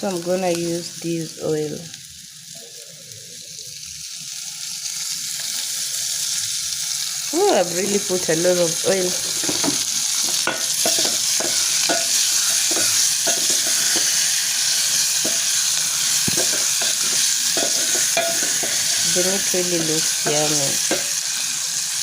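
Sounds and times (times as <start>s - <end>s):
meat sizzling in hot oil: 0.0s - 22.0s.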